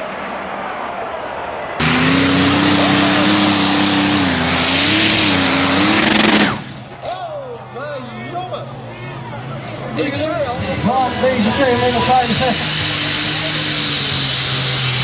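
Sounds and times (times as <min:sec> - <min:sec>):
tractor engine running flat out: 0:01.8 - 0:07.4, 0:08.6 - 0:15.0.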